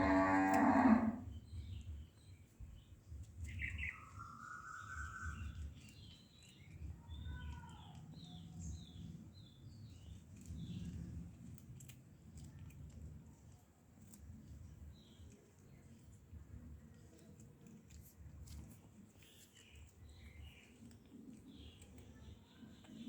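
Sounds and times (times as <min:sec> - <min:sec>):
birds chirping: 0:00.0 - 0:10.7
long steady bird whistle: 0:03.6 - 0:05.6.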